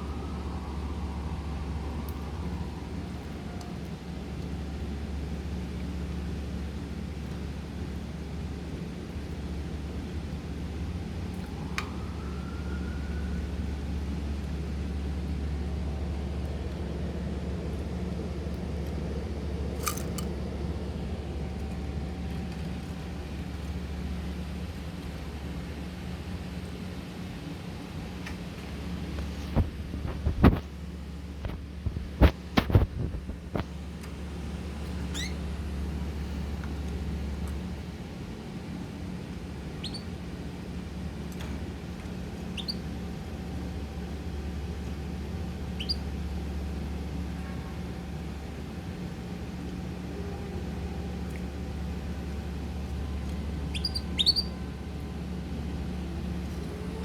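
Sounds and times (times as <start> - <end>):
steady low hum: 0.0 - 57.0
bird chirping: 35.1 - 35.4, 39.8 - 40.0, 42.6 - 42.8, 45.8 - 46.0, 53.7 - 54.6.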